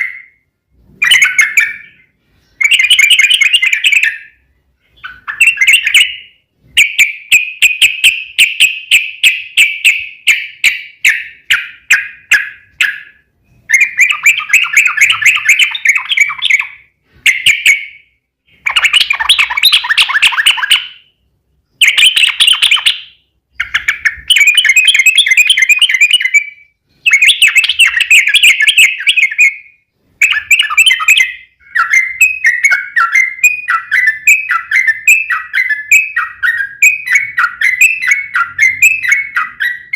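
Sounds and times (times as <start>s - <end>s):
bird singing bubbling phrases: 5.0s - 21.2s, 21.8s - 39.9s.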